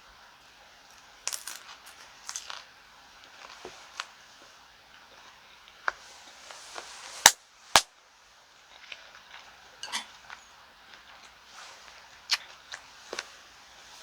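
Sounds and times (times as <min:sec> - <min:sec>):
utensils clinking against dishes: 0:09.8 - 0:10.5.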